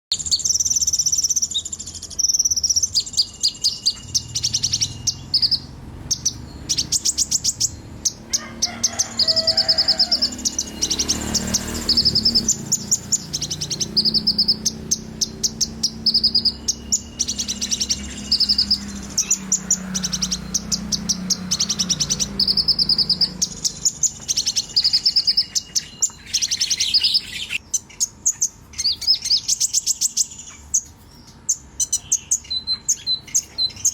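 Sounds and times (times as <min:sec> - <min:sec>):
songbird singing: 0:00.1 - 0:33.9.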